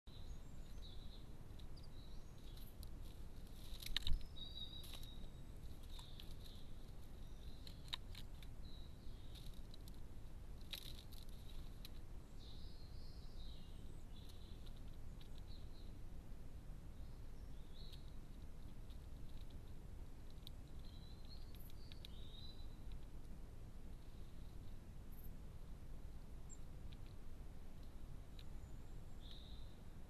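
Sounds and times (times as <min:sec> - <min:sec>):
background hiss: 0:00.1 - 0:30.0
small birds chirping: 0:00.1 - 0:30.0.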